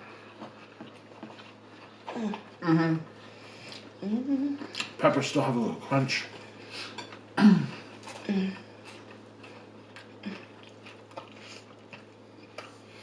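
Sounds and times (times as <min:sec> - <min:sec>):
chewing food: 0:00.0 - 0:02.6, 0:06.4 - 0:13.0
murmured hums of enjoyment: 0:02.1 - 0:04.8.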